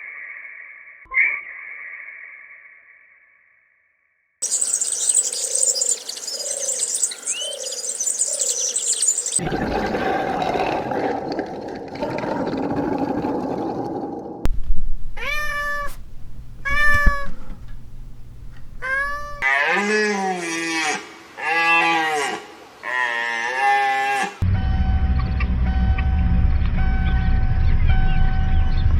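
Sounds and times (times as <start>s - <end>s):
cat meowing: 14.9s - 19.5s.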